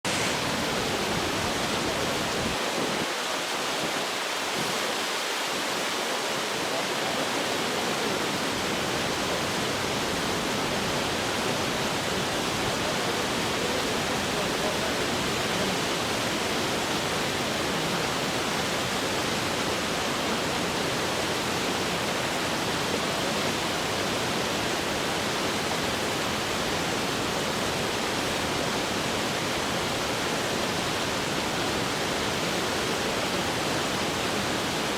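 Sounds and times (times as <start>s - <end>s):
rushing water: 0.0s - 34.9s.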